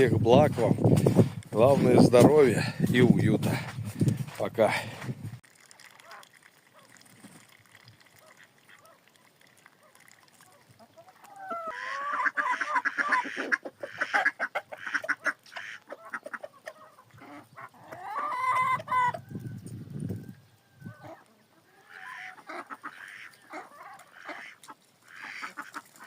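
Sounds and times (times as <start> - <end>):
chickens clucking and cackling: 10.6 - 26.0.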